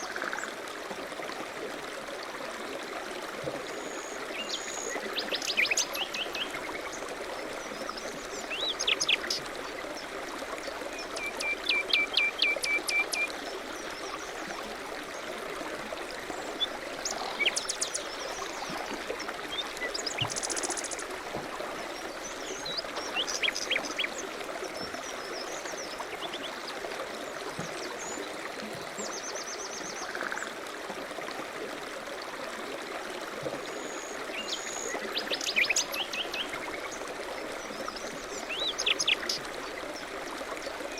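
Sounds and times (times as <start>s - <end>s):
running water rushing: 0.0s - 40.9s
songbirds singing: 3.9s - 14.3s, 16.3s - 30.0s, 33.8s - 40.9s.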